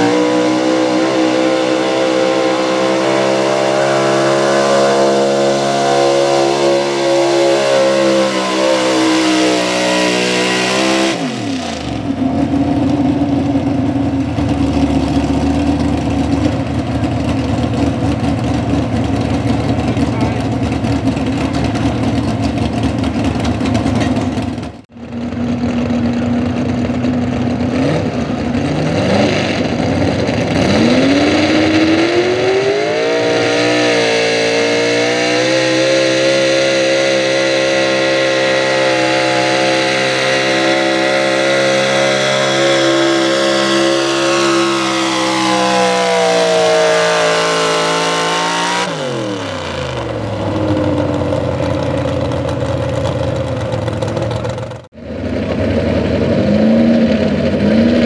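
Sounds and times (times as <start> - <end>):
truck engine revving hard: 0.0 - 24.9, 26.2 - 58.0.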